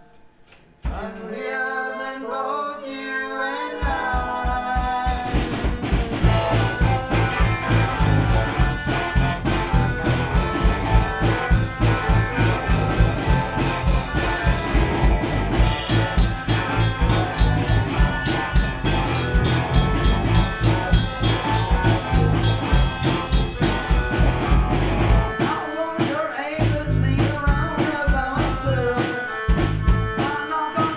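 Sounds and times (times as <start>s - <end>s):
drums beating fast: 0.0s - 1.2s, 3.8s - 30.9s
accordion: 1.6s - 30.9s
guitar: 3.8s - 30.9s
bass: 5.1s - 25.5s, 26.6s - 30.3s.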